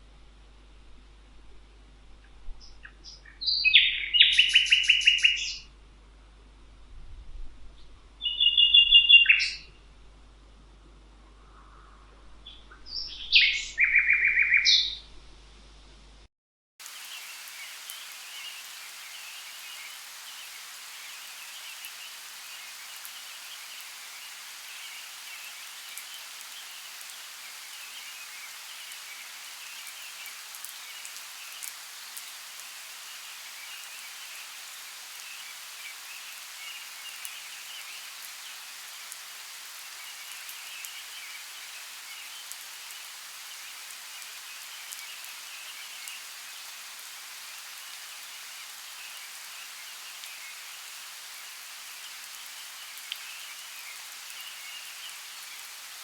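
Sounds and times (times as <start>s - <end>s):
steady rain hissing: 0.0s - 56.0s
raindrop ticks: 53.0s - 53.3s.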